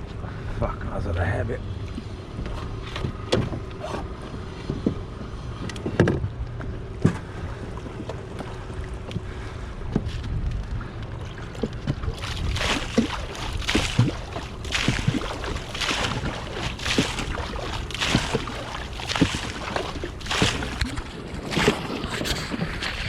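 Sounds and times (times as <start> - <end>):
wind rumble on microphone: 0.0 - 23.0
knocks and clunks: 5.7 - 6.3.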